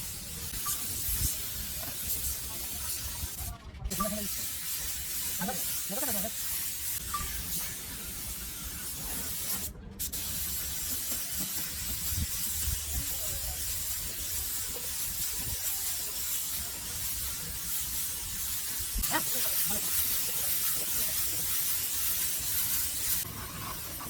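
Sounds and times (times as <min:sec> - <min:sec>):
steady hissing spray: 0:00.0 - 0:24.0.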